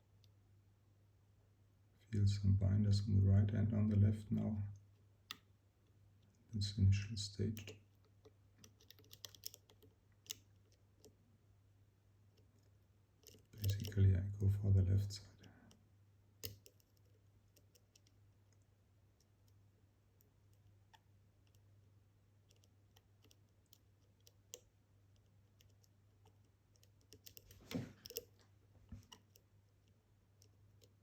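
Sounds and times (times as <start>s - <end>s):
lock pick clicks and scraping: 8.6s - 11.1s, 13.2s - 14.0s, 16.4s - 18.1s, 25.6s - 28.4s.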